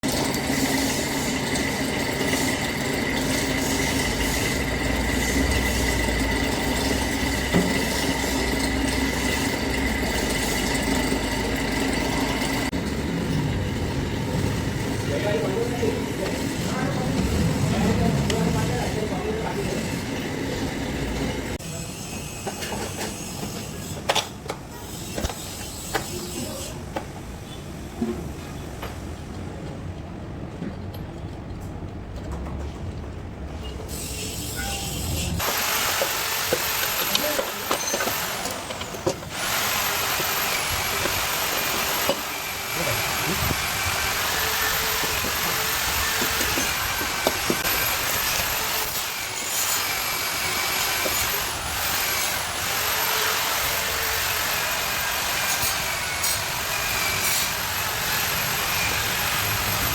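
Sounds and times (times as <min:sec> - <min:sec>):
angle grinder whining: 0:00.0 - 0:21.6, 0:35.4 - 0:59.9.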